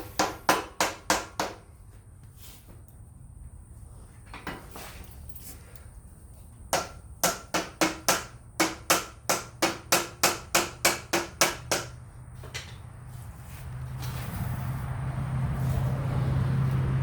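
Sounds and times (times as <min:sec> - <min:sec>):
hammer striking steel: 0:00.0 - 0:01.6, 0:06.8 - 0:12.0.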